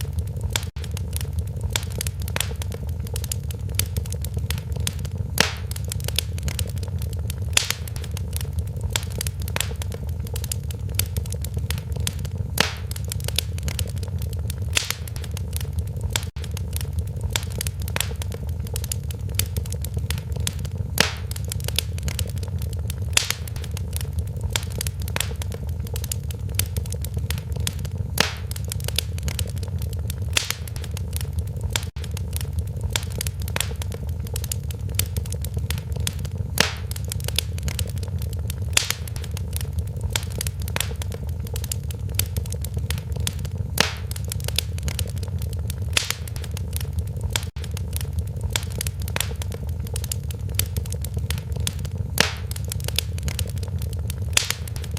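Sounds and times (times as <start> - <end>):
fireplace fire crackling: 0.0 - 54.9
sharp pops: 0.2 - 54.9.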